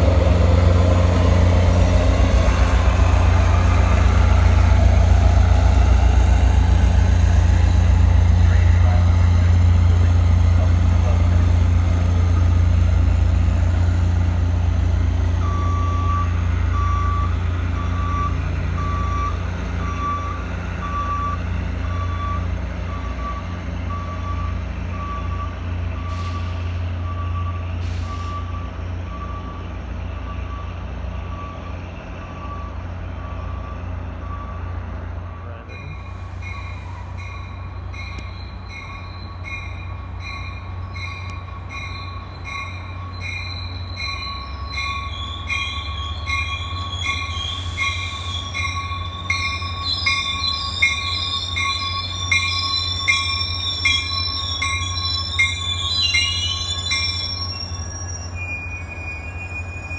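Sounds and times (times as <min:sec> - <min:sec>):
diesel train rumble: 0:00.0 - 0:59.9
reversing beeper: 0:15.4 - 0:34.7, 0:35.3 - 0:59.9.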